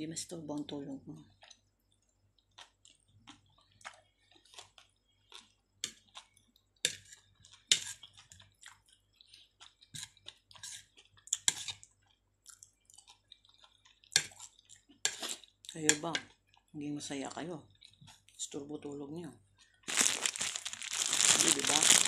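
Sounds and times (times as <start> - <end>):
chewing and wet mouth clicks: 1.3 - 16.7, 17.7 - 18.4.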